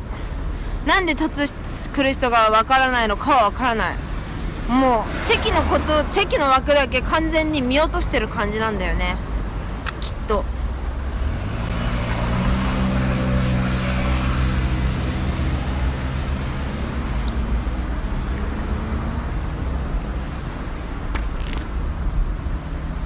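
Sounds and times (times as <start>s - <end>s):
low traffic rumble: 0.0s - 23.0s
vehicle passing: 4.3s - 7.7s, 11.1s - 20.4s.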